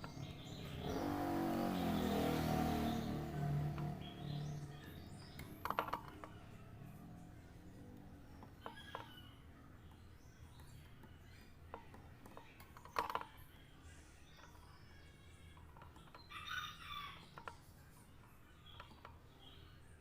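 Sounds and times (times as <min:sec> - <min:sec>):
faint clicks and knocks: 0:04.6 - 0:06.7, 0:07.6 - 0:13.7, 0:14.3 - 0:16.3, 0:17.2 - 0:19.6.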